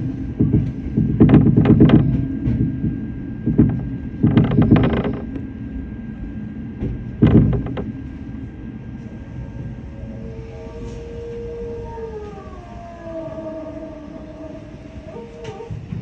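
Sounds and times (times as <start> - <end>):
wheels clacking on track: 0.0 - 5.5
electric train rumbling: 0.0 - 16.0.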